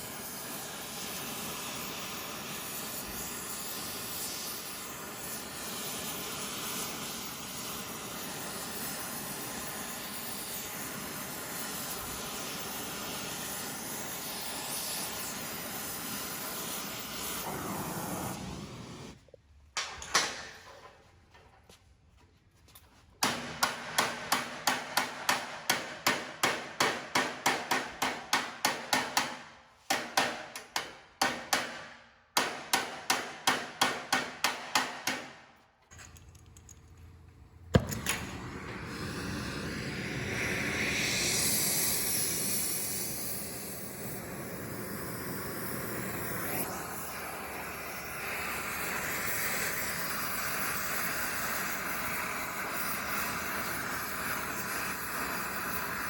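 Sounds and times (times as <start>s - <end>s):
steady hiss: 0.0s - 19.2s, 37.6s - 56.0s
hammer striking metal: 23.2s - 35.4s.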